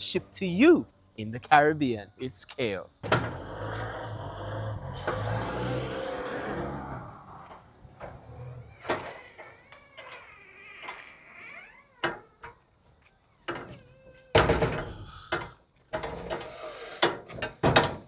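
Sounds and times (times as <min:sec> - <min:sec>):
metal door squeal: 0:08.1 - 0:12.6.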